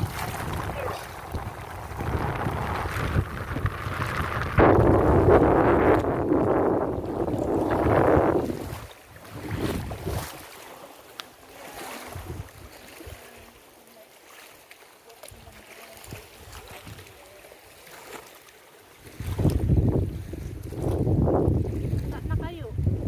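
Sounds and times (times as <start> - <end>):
wind buffeting microphone: 0.0 - 10.4, 12.1 - 13.1, 19.0 - 23.0.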